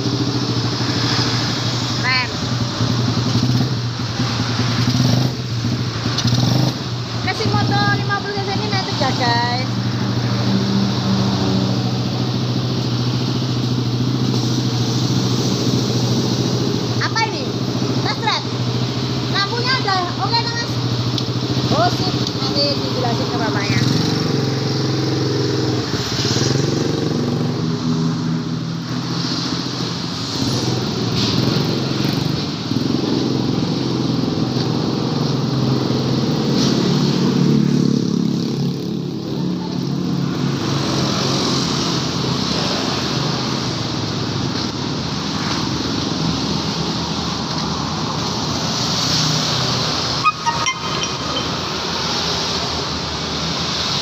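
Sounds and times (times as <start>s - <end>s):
motorcycle engine running: 11.7s - 25.8s.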